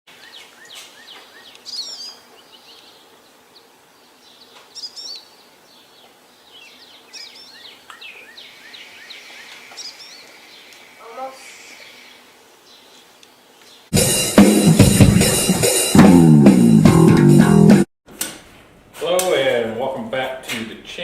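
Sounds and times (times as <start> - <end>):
faint background hiss: 0.1 - 13.9
birds chirping: 0.1 - 15.9.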